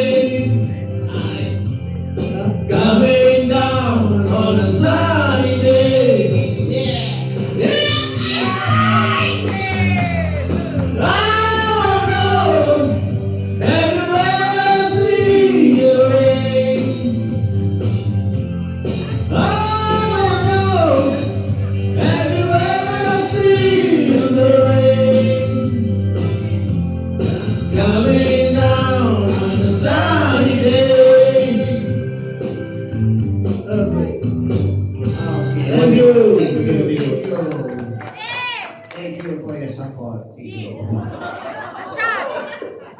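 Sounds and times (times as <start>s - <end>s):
man singing: 0.0s - 17.6s, 18.9s - 26.5s, 27.2s - 32.6s, 35.0s - 38.0s
instrumental backing music: 0.0s - 39.8s.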